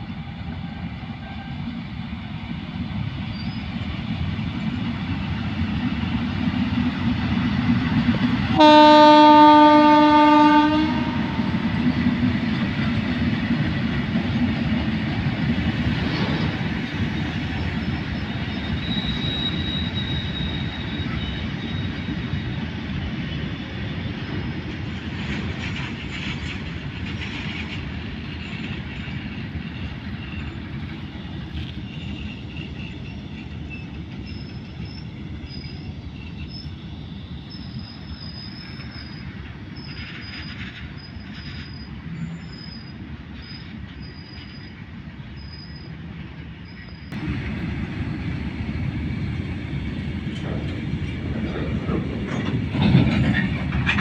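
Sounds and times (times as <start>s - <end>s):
train wheels rumbling: 0.0s - 54.0s
high wheel squeals: 16.4s - 24.8s, 29.2s - 47.2s.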